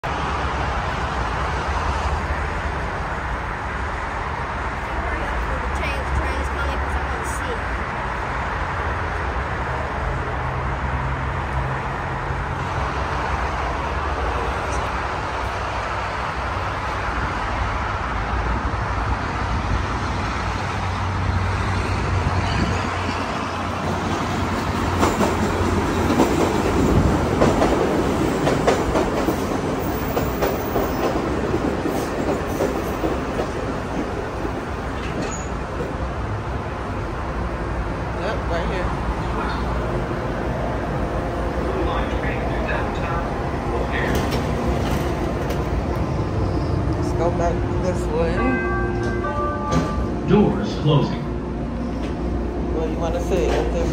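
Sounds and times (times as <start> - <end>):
expressway traffic noise: 0.0 - 53.9
train wheels clattering on rails: 22.1 - 36.3, 42.7 - 50.2, 53.1 - 53.9.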